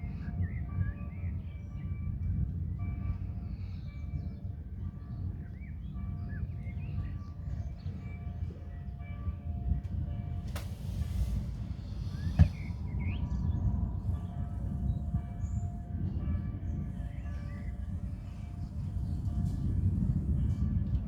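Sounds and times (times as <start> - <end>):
brief hiss: 10.6 - 12.8
birds chirping and calling: 11.6 - 15.9.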